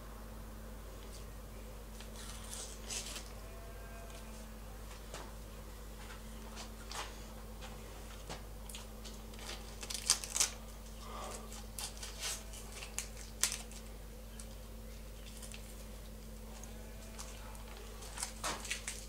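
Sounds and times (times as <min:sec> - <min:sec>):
adhesive sheet peeling and tearing: 0:02.1 - 0:03.3, 0:09.4 - 0:10.6.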